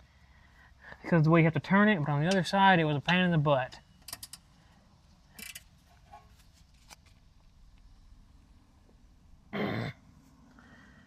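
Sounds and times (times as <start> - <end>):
wrench scraping: 5.4 - 6.4.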